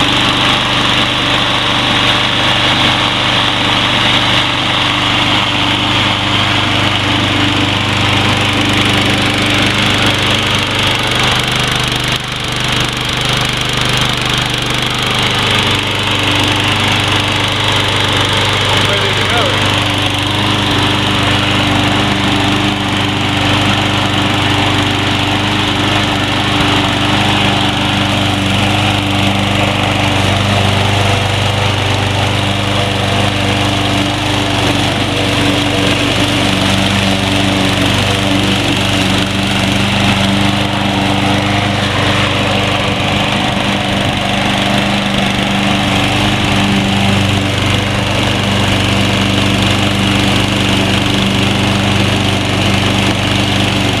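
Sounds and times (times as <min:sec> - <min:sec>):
lawn mower engine running: 0:00.0 - 0:54.0.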